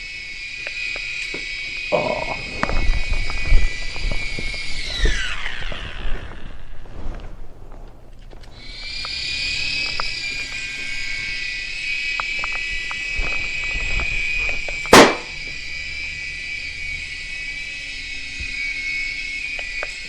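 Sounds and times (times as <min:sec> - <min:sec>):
toy helicopter motors whining: 0:00.0 - 0:06.9, 0:08.4 - 0:20.0
loud sharp pop: 0:14.9 - 0:15.4.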